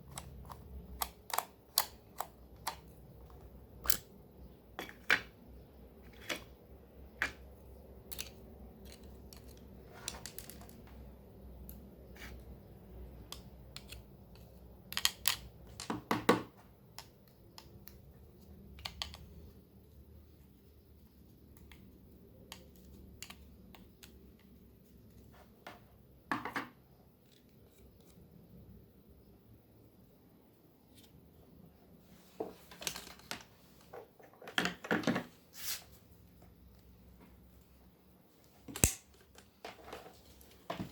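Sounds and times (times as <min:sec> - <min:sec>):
plastic parts clicking and scraping: 0:00.0 - 0:04.1, 0:07.2 - 0:11.0, 0:13.2 - 0:16.1.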